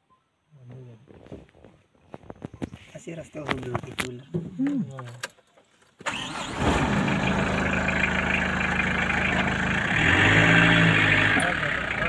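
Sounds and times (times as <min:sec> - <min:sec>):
engine cranking and idling: 0:05.9 - 0:12.0.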